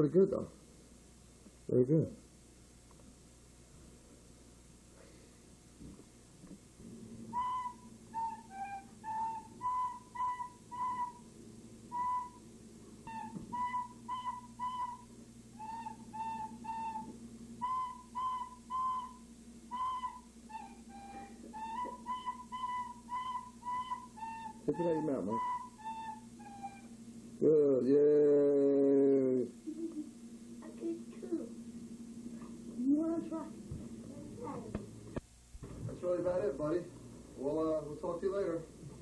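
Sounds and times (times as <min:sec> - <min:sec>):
faint low hum: 0:00.0 - 0:39.0
recorder playing a simple tune: 0:07.2 - 0:27.0.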